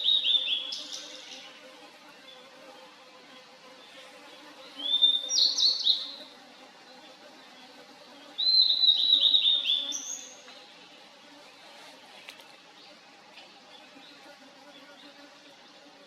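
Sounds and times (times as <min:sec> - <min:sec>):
bird singing whistled notes: 0:04.8 - 0:06.1, 0:08.4 - 0:10.3.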